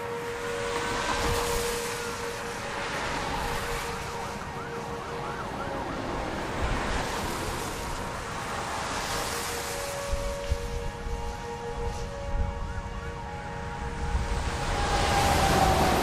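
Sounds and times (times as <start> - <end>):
faint wavering siren: 0.0 - 16.0
wind noise on microphone: 0.8 - 4.3, 6.4 - 16.0.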